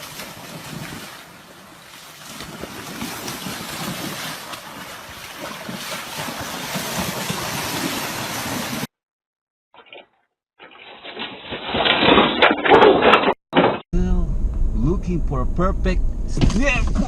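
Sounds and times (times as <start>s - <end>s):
rushing water: 0.0s - 8.9s.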